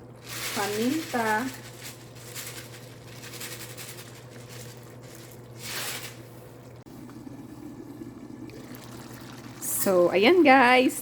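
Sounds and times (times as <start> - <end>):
stew bubbling in a pot: 6.9 - 10.3.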